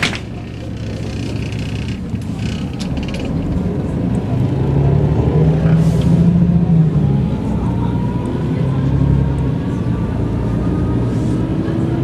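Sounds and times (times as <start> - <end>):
interior rattling: 0.0 - 3.7
bus diesel engine: 0.0 - 12.0.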